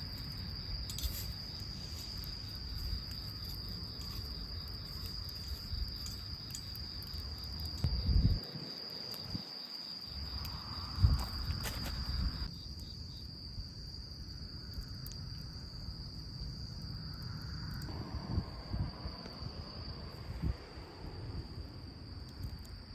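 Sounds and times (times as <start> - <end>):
crickets trilling: 0.0 - 22.9
low rumble: 17.3 - 22.9.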